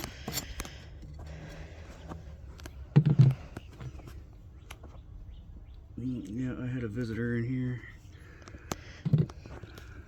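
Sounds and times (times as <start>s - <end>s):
wooden frames clicking and knocking: 2.5s - 4.1s.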